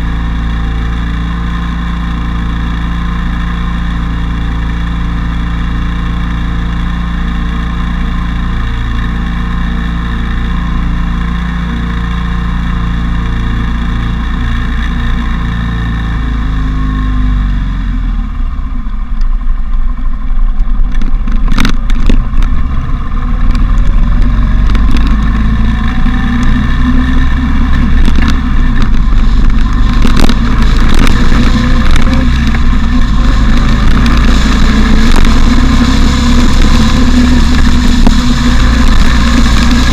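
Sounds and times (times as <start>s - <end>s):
motorcycle engine accelerating: 0.0s - 39.9s
rushing wind noise: 19.6s - 39.9s.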